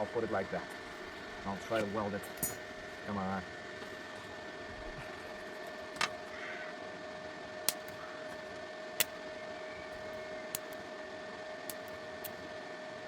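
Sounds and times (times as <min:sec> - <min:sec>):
welder humming with fan whine: 0:00.0 - 0:13.0
electrode striking metal clicks: 0:07.7 - 0:08.0.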